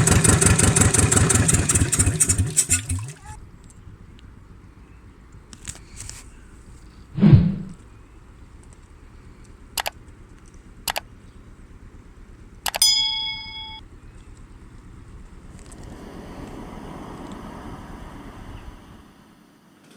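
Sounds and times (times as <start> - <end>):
heavy thump: 7.2 - 7.8
sharp clicks: 8.6 - 11.4, 12.6 - 14.5
ringing metal clink: 12.7 - 13.9.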